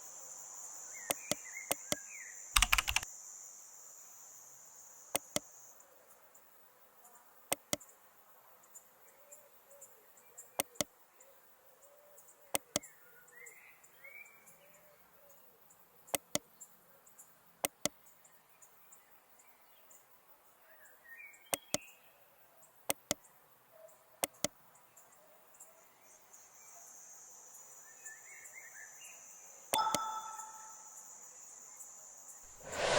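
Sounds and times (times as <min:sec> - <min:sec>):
soft chirps: 0:01.0 - 0:03.0, 0:29.8 - 0:31.1
computer mouse clicks: 0:02.6 - 0:03.1, 0:21.5 - 0:21.8.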